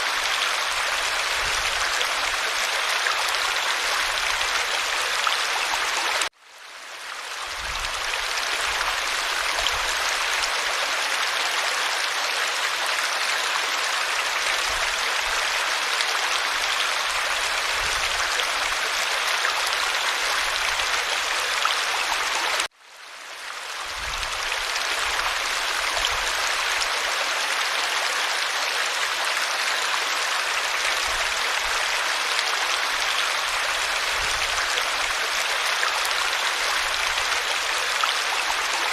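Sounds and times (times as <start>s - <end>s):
creek water rushing: 0.0s - 38.9s.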